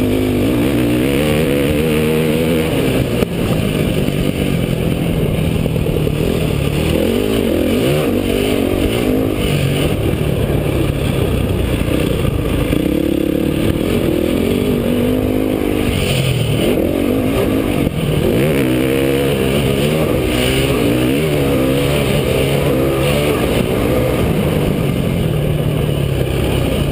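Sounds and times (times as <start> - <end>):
motocross bike engine revving: 0.0 - 26.9.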